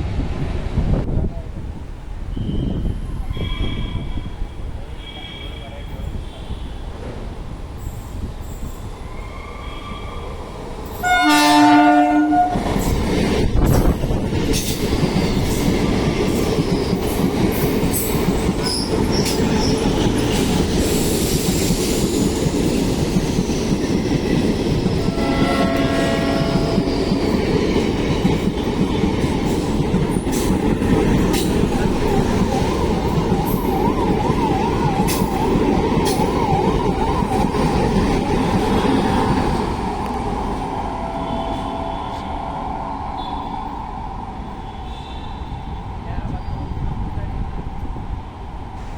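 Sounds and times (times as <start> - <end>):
train wheels on rails: 2.1 - 48.9
train horn: 11.0 - 12.8, 25.0 - 27.0, 40.9 - 42.6, 43.2 - 43.7, 44.6 - 45.9.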